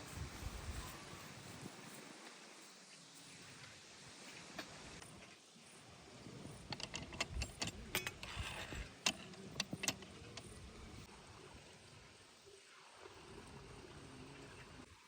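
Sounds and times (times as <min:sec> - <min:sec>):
cooking utensils clinking: 0:06.6 - 0:10.6.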